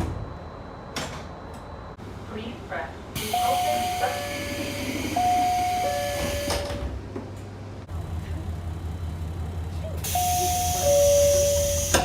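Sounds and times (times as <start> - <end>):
two-tone door chime: 3.2 - 6.9, 10.1 - 12.0
train doors knocking shut: 5.4 - 7.2.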